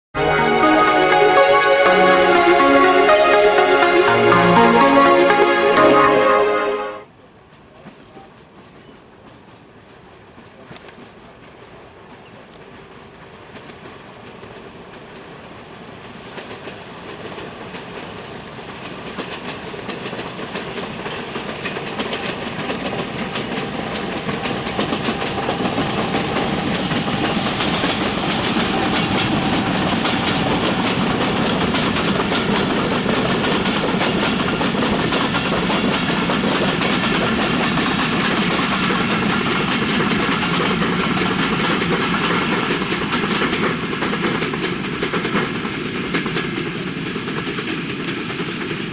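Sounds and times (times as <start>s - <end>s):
train approaching: 0.1s - 7.1s, 11.6s - 48.9s
train wheels clattering: 16.2s - 48.9s.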